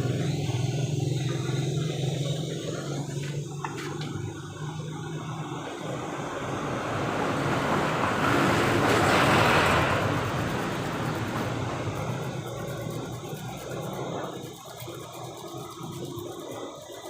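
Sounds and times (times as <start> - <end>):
steady low hum: 0.0 - 17.0
vehicle passing by: 4.3 - 14.0.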